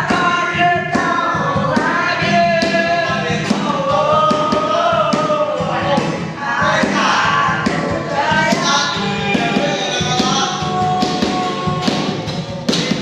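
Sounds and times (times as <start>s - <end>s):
steady knocking beat: 0.0s - 13.0s
voices singing together: 0.0s - 13.0s.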